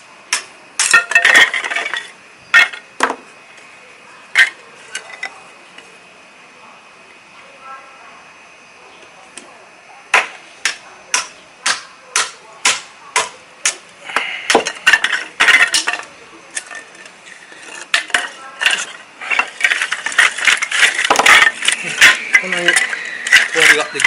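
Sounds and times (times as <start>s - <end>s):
kindling being split: 0.8s - 2.8s, 11.2s - 24.0s
clatter of wood pieces knocking: 0.8s - 3.2s, 14.5s - 24.0s.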